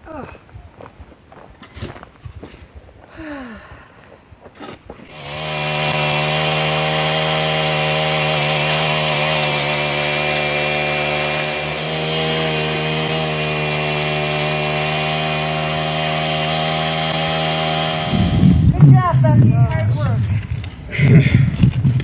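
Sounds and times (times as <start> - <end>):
power tool running: 5.0 - 18.8.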